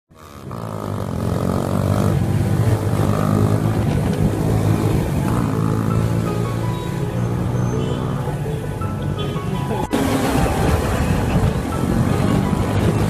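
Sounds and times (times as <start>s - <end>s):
motorcycle engine running: 0.1s - 6.6s.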